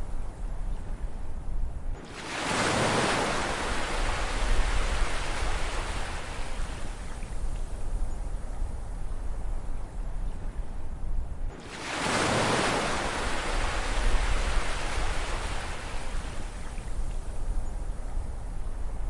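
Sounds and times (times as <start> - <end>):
surf rumble: 1.9 - 10.8, 11.4 - 19.0
wave breaking: 11.6 - 16.4.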